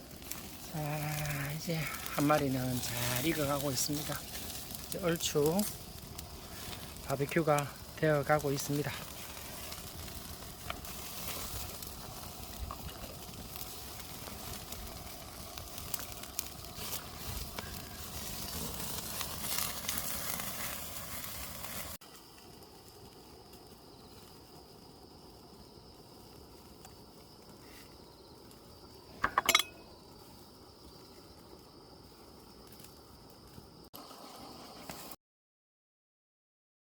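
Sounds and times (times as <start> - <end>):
chickens sizzling over fire: 0.0 - 35.2.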